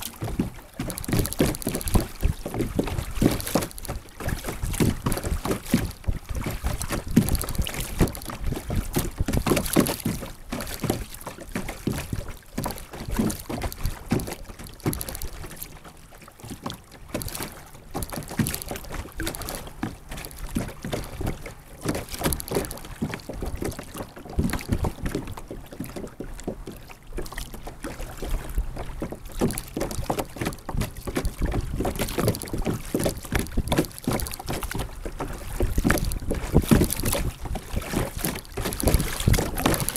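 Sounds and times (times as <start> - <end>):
wind noise on microphone: 0.0 - 10.1, 28.3 - 39.9
water splashing against kayak hull: 0.0 - 39.9.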